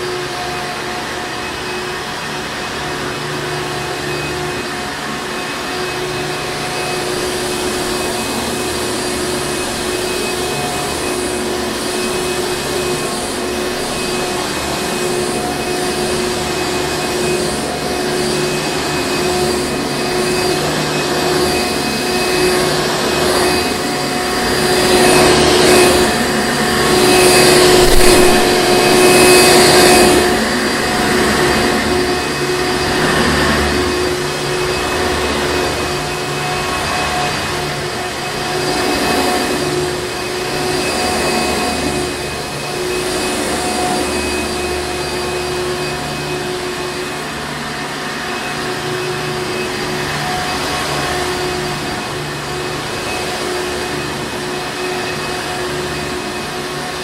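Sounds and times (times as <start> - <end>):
vacuum cleaner running: 0.0 - 57.0
pulsing swishes: 25.2 - 32.0.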